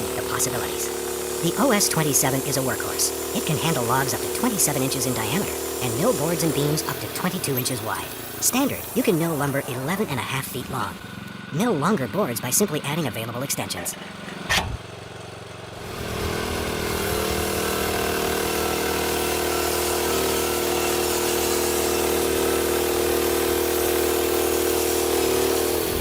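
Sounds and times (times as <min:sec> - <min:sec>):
sawmill engine running: 0:00.0 - 0:26.0.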